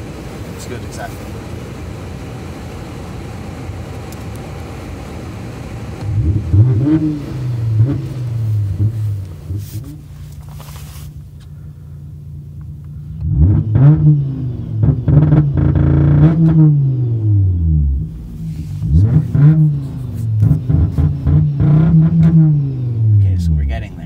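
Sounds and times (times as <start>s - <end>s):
diesel engine revving against limiter: 5.9s - 10.1s, 13.2s - 23.6s.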